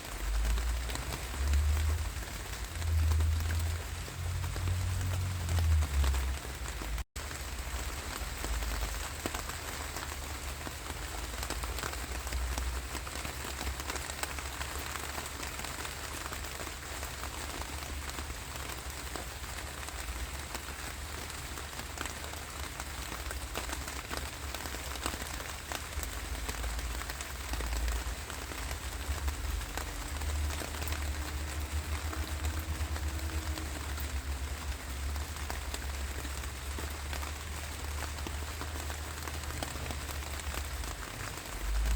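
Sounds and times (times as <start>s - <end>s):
raindrops ticking: 0.0s - 41.9s
steady rainfall: 0.0s - 41.9s
low rumble: 0.1s - 7.0s.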